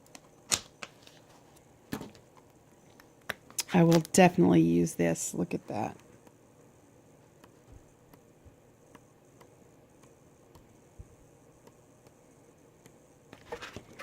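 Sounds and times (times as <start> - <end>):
paper rustle: 13.4 - 14.0.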